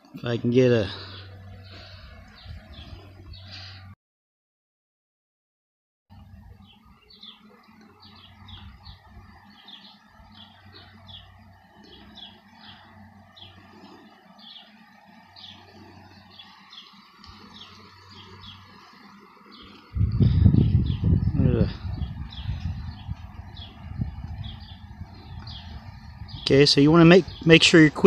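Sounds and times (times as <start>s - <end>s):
low steady hum: 6.1s - 28.0s
bird chirping: 6.6s - 28.0s.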